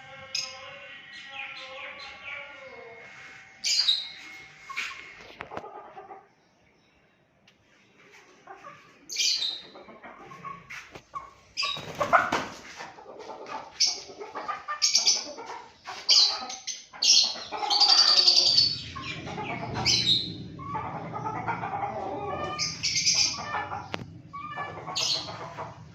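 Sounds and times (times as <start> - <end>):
hens squawking: 8.5 - 25.9
wings flapping: 11.6 - 12.7.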